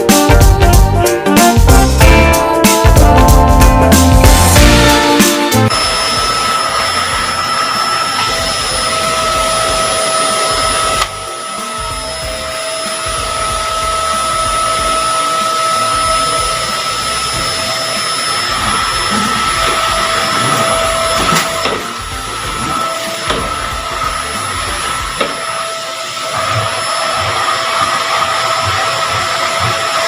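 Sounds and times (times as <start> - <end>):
vacuum cleaner motor whine: 4.7 - 30.0.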